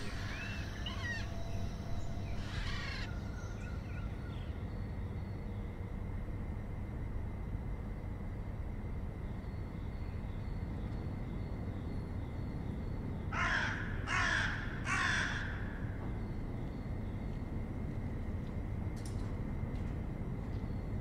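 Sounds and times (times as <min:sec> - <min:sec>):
bird harsh calls: 0:00.0 - 0:04.1
low background rumble: 0:00.0 - 0:10.7.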